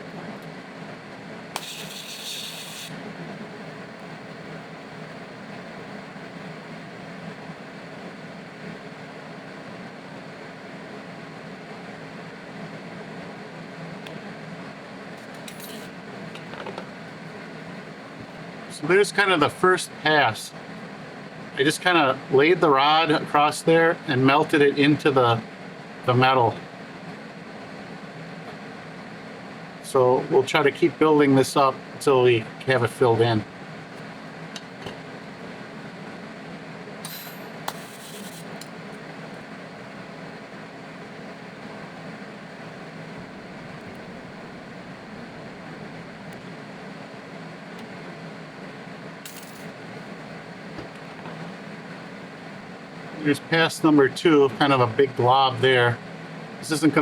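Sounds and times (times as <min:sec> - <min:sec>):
welding hum and hiss: 0:01.2 - 0:23.4, 0:29.9 - 0:57.0
high hiss: 0:01.6 - 0:03.0, 0:37.0 - 0:38.7
welding arc hissing: 0:01.6 - 0:06.2, 0:15.4 - 0:16.0, 0:37.0 - 0:38.9, 0:49.3 - 0:49.8.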